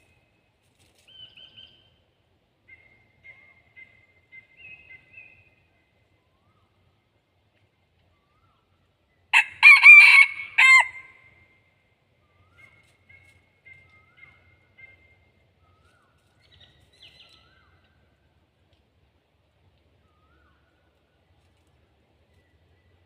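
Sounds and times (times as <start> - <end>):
rooster crowing: 9.4 - 11.1.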